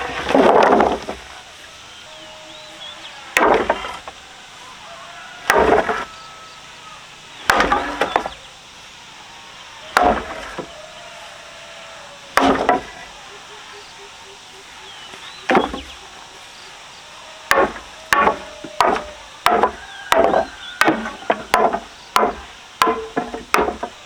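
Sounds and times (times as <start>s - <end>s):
blade chopping wood: 0.0s - 1.4s, 3.4s - 4.2s, 5.4s - 6.1s, 7.4s - 8.4s, 9.9s - 10.8s, 12.4s - 13.2s, 15.5s - 16.0s, 17.5s - 24.0s.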